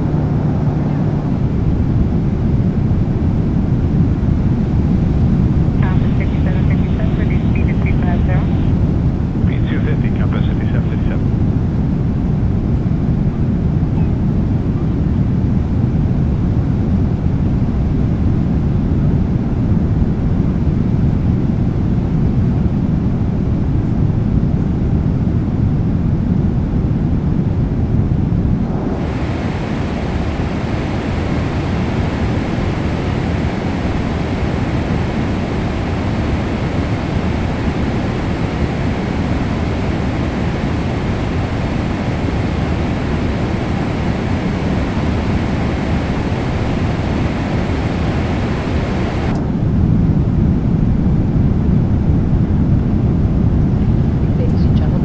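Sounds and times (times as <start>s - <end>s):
rushing airflow: 0.0s - 11.3s, 27.0s - 54.9s
jet engine rumble: 0.0s - 55.0s.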